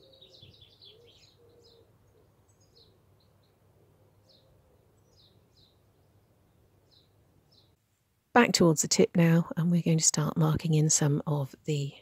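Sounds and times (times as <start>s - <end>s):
faint birds chirping: 0.0s - 8.0s.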